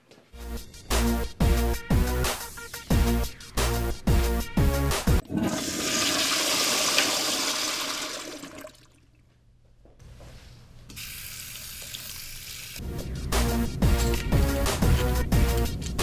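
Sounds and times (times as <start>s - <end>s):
toilet flushing: 5.2s - 9.0s
water running softly: 5.2s - 9.4s, 11.0s - 12.8s.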